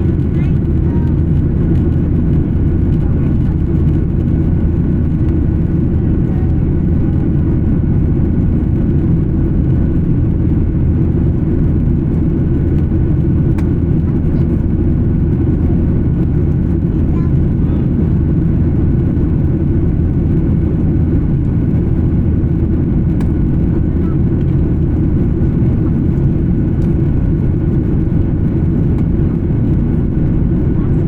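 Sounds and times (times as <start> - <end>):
jet engine and airflow rumble: 0.0 - 31.0.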